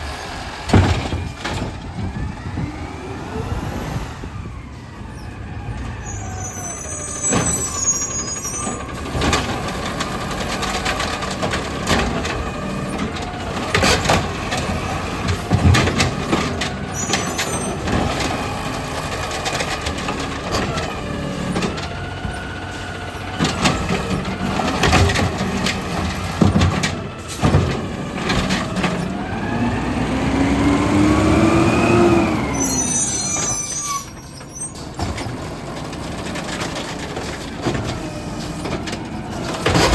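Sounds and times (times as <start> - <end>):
garbage truck engine running: 0.0 - 39.9
cart banging and clattering: 0.2 - 3.0, 5.8 - 39.9
short high squeals: 6.0 - 8.9, 32.5 - 34.9.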